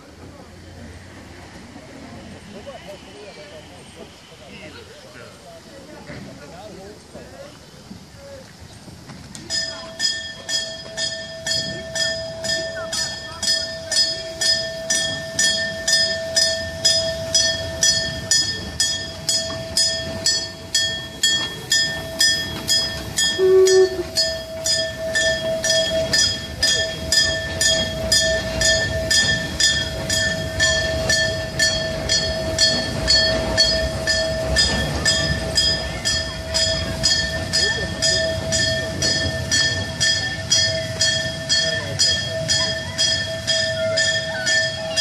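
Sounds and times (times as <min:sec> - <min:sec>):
railway warning bell ringing: 0:09.4 - 0:45.0.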